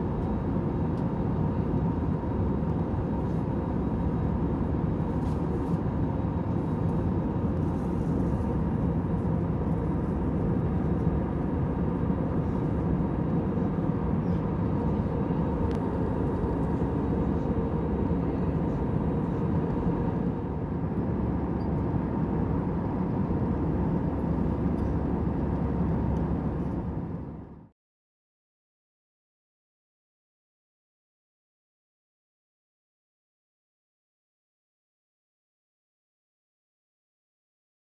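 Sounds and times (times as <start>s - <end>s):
airliner cabin hum and rush: 0.0s - 27.8s.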